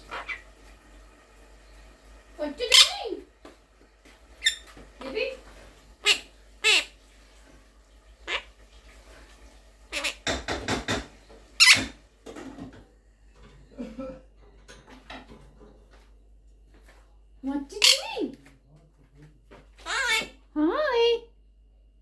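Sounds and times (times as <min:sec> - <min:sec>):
parrot squawking and chattering: 0:00.0 - 0:00.6, 0:02.5 - 0:03.3, 0:04.3 - 0:07.0, 0:08.2 - 0:08.5, 0:09.9 - 0:11.0, 0:11.6 - 0:12.0, 0:17.7 - 0:18.3, 0:19.8 - 0:21.1.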